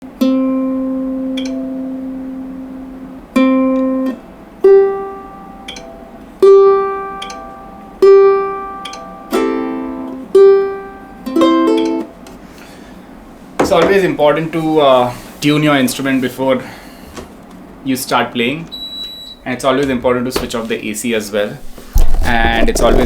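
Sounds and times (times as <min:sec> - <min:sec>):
ukulele notes plucked: 0:00.0 - 0:12.3
ukulele strum: 0:00.0 - 0:12.3.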